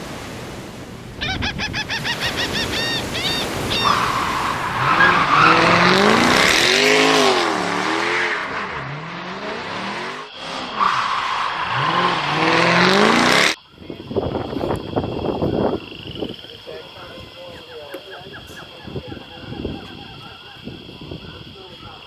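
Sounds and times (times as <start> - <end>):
high squeaking chirps: 1.2 - 8.9
engine revving: 3.7 - 13.6.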